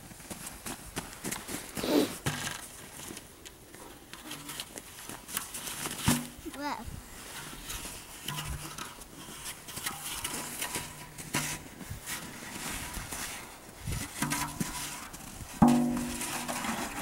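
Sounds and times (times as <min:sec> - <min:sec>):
footsteps crunching through snow: 0:00.0 - 0:03.2.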